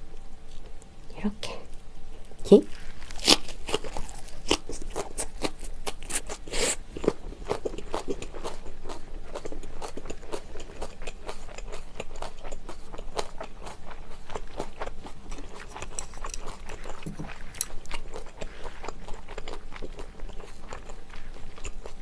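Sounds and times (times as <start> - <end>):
crunchy chewing: 2.2 - 22.0.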